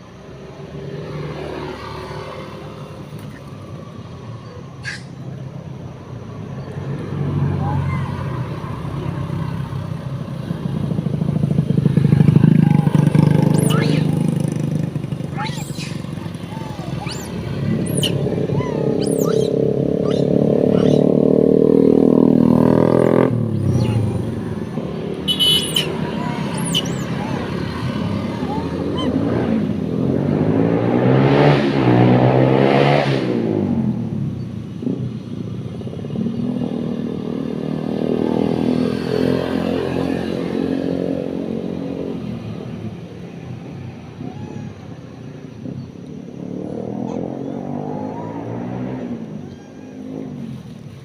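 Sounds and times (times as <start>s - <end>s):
short high chirping calls: 4.4s - 5.4s, 13.4s - 14.4s, 15.3s - 21.1s, 25.3s - 27.7s, 28.3s - 29.2s
vehicle engine running: 8.4s - 30.5s.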